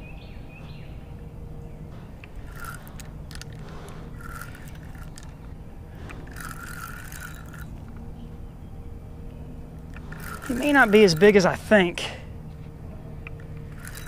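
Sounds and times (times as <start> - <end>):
steady low rumble: 0.0 - 14.0
fishing reel whirring: 2.3 - 7.9, 9.8 - 11.5, 13.3 - 14.0.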